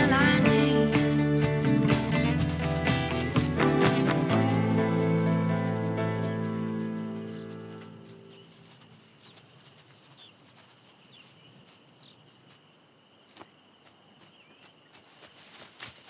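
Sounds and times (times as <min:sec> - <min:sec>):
high insect trill: 0:00.0 - 0:16.0
bird chirps: 0:06.5 - 0:10.4.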